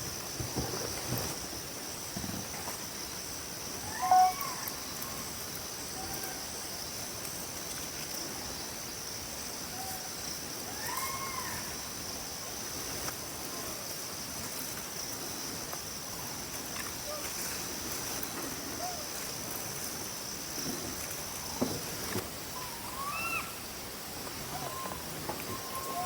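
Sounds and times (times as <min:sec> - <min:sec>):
insects buzzing: 0:00.0 - 0:26.0
wild animal call: 0:03.8 - 0:05.2, 0:22.5 - 0:23.6, 0:24.4 - 0:26.0.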